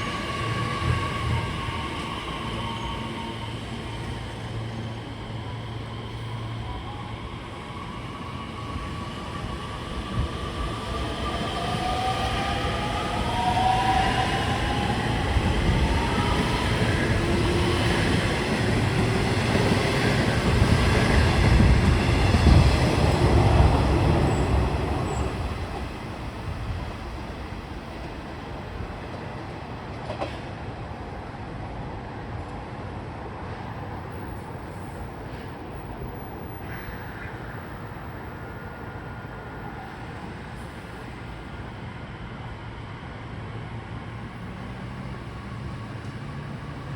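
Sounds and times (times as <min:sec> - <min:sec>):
train wheels rumbling on rails: 0:07.4 - 0:31.0.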